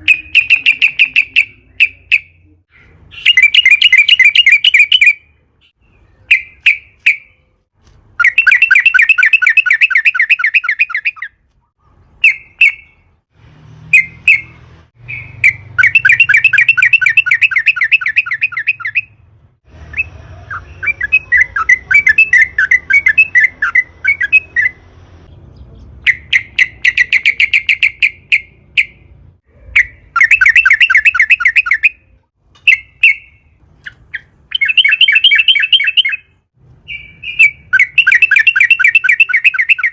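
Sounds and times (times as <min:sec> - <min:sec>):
bulbul singing rolling phrases: 0:00.0 - 0:39.9
bird call bursts: 0:34.1 - 0:39.9.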